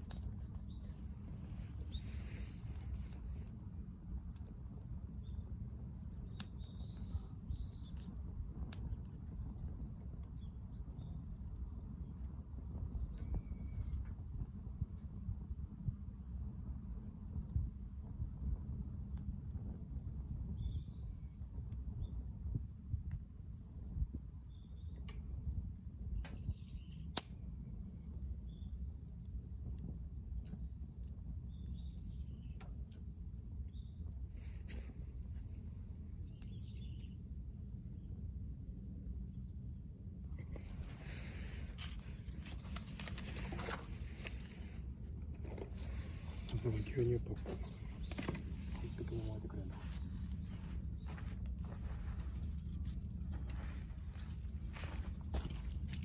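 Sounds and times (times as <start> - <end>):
small birds chirping: 0.0 - 15.2, 20.5 - 22.3, 23.4 - 37.3, 39.3 - 56.0
campfire crackling and popping: 0.0 - 56.0
small bird chirping: 6.2 - 8.2, 13.0 - 14.0, 31.5 - 32.6, 36.2 - 37.2, 45.8 - 51.3, 53.5 - 55.7.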